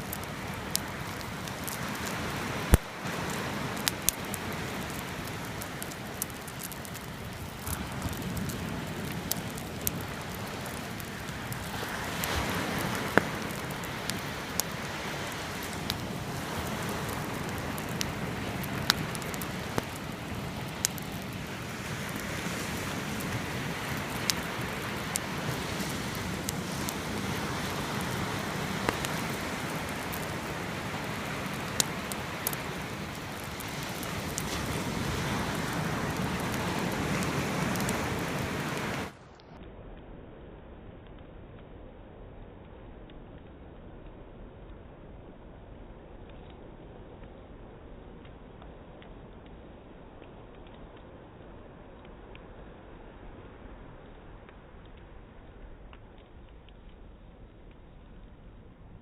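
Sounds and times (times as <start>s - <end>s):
sea waves: 0.0s - 39.2s
campfire crackling and popping: 0.0s - 59.0s.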